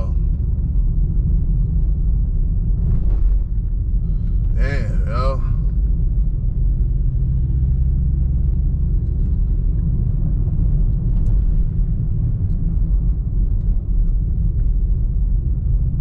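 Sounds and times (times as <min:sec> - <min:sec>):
car interior rumble: 0:00.0 - 0:16.0.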